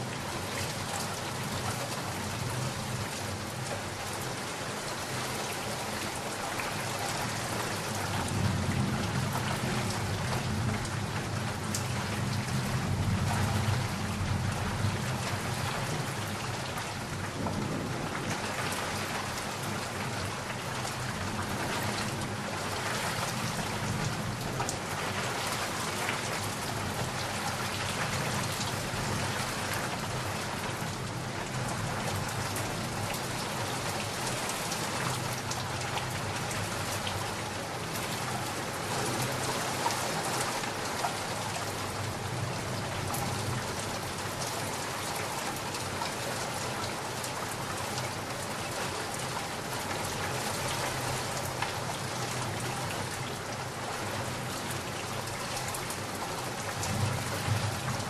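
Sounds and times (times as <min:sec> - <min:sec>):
rain falling on surfaces: 0:00.0 - 0:58.0
low rolling thunder: 0:17.1 - 0:22.4, 0:56.8 - 0:58.0.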